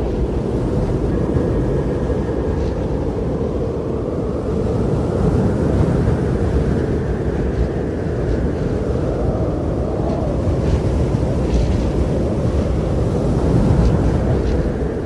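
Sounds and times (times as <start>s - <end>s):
strong blizzard wind: 0.0s - 15.0s.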